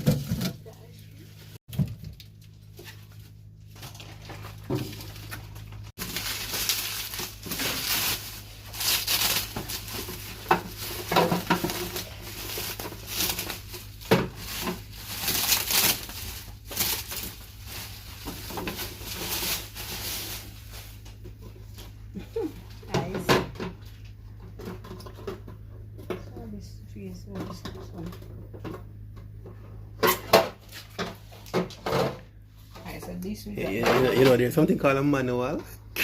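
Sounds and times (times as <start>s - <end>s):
steady low hum: 0.0s - 36.0s
plastic packaging crinkling: 2.2s - 21.2s.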